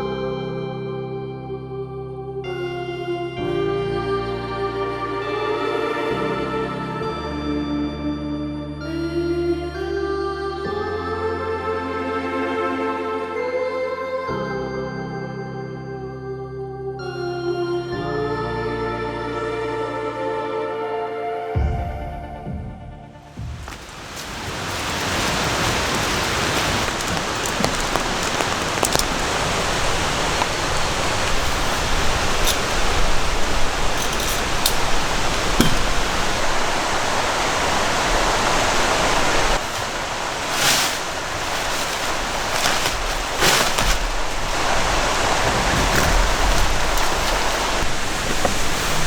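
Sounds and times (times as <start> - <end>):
rain hissing in a forest: 23.3 - 49.0.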